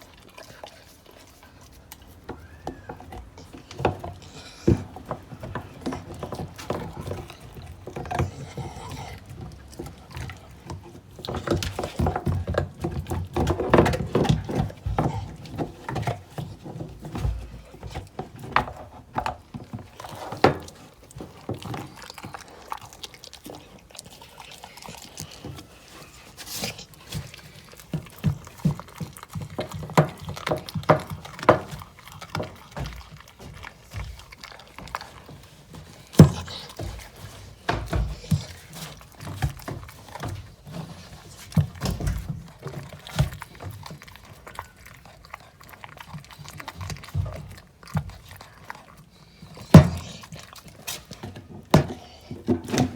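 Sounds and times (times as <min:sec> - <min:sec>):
dog crunching bones: 0:00.0 - 0:52.9
jaws thudding: 0:26.4 - 0:44.2, 0:49.4 - 0:52.9.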